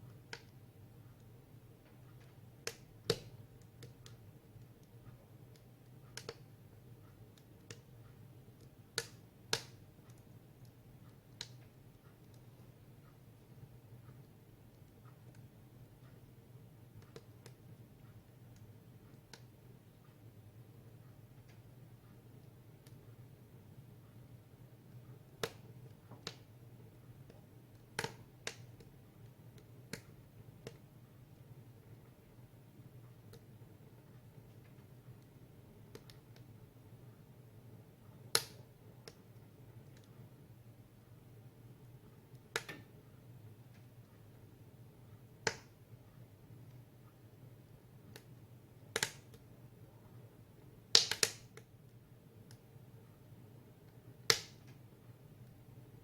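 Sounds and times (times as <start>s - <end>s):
faint low hum: 0.0s - 56.0s
firewood crackling and popping: 1.8s - 6.5s, 7.3s - 12.6s, 25.3s - 26.6s, 27.2s - 28.9s, 38.3s - 40.1s, 45.4s - 45.8s, 48.9s - 49.4s, 50.9s - 51.6s, 54.3s - 54.8s.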